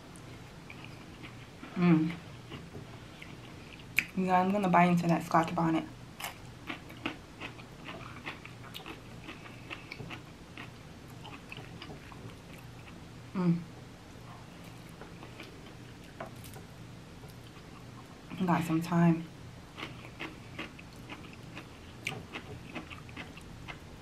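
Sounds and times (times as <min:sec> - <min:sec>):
person humming: 0:01.8 - 0:02.2, 0:13.4 - 0:13.7
wet chewing: 0:06.2 - 0:13.0, 0:19.8 - 0:23.8.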